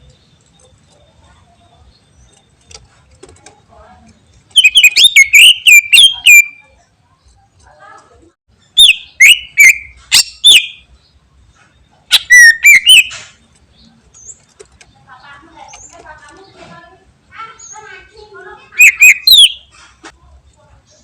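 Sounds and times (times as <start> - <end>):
bird singing sharp whistles: 4.6 - 6.6, 8.8 - 10.8, 12.1 - 13.2, 18.8 - 19.6.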